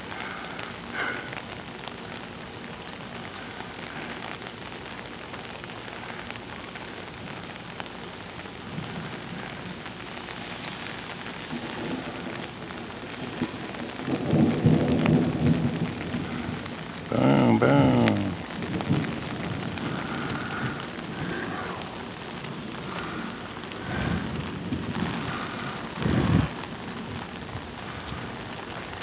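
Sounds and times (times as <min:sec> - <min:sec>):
steady rain: 0:00.0 - 0:29.0
low rumble of thunder: 0:08.6 - 0:29.0.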